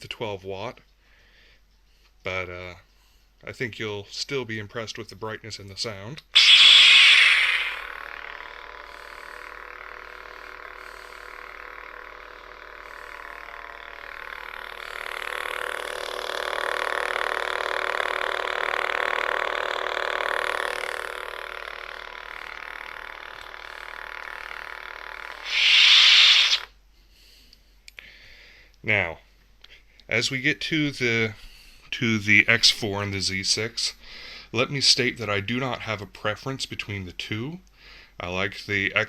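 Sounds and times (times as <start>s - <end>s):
lightsaber ignition sound: 6.4s - 16.3s, 25.3s - 26.7s
lightsaber throaty hum: 6.4s - 18.4s, 25.3s - 26.7s.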